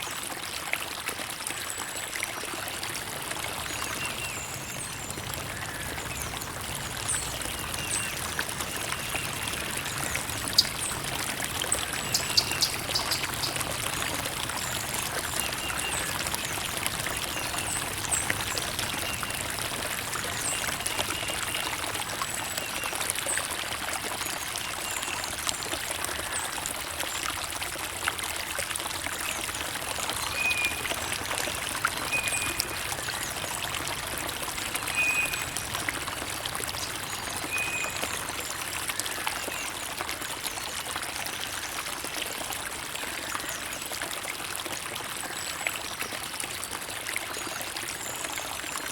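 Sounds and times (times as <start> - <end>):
creek water trickling: 0.0 - 48.9
water splashes and drips: 0.0 - 48.9.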